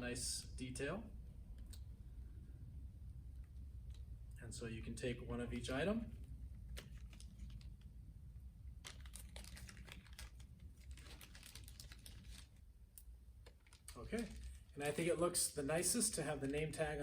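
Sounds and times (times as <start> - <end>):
plastic bag crinkling: 6.7 - 7.9, 8.7 - 12.7, 13.4 - 15.2.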